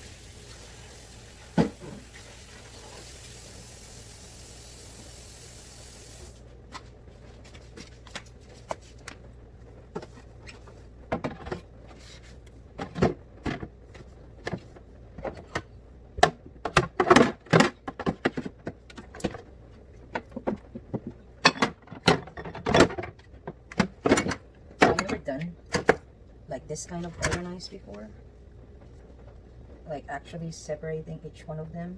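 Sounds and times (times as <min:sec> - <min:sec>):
containers and bottles clattering: 0:12.8 - 0:19.4, 0:20.1 - 0:26.0.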